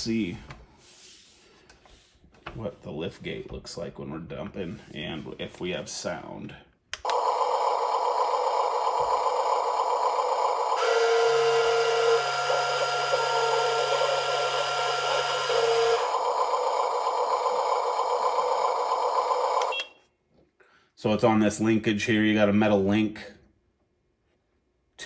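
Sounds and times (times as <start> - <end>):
toy truck motor whirring: 7.0 - 19.8
noisy mechanical sound: 7.0 - 19.9.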